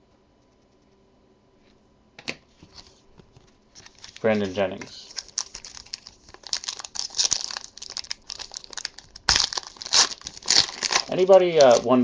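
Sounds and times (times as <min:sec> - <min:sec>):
plastic foil wrapper crinkling: 0:03.7 - 0:12.0
sharp plastic crackle: 0:05.0 - 0:12.0.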